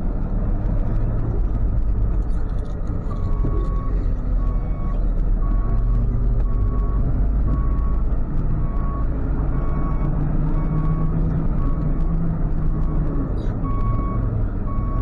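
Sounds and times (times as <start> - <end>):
truck engine idling: 0.0 - 10.0, 13.2 - 15.0.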